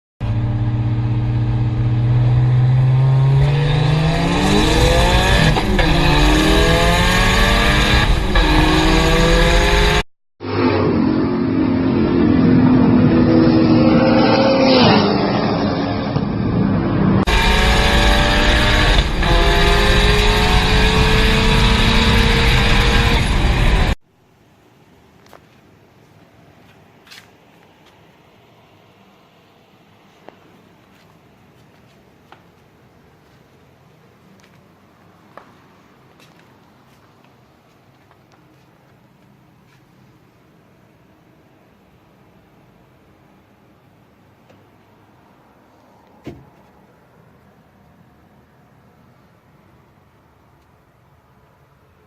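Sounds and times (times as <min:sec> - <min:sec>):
race car engine accelerating: 0:00.2 - 0:24.0.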